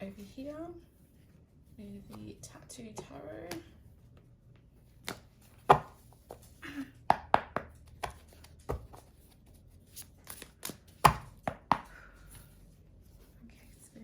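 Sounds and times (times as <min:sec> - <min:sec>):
cards being shuffled: 0:07.4 - 0:13.9.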